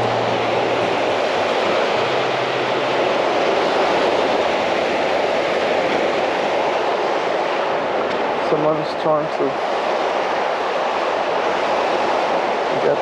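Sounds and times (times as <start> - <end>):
sea surf washing on beach: 0.0 - 13.0.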